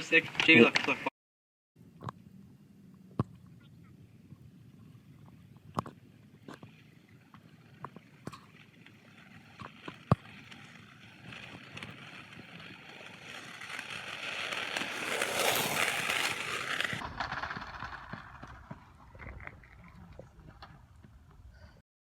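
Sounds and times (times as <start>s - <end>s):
board wheels rolling on pavement: 4.0s - 21.7s.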